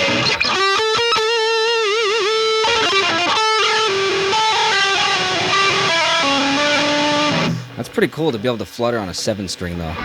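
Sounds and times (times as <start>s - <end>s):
distorted electric guitar: 0.0s - 7.9s.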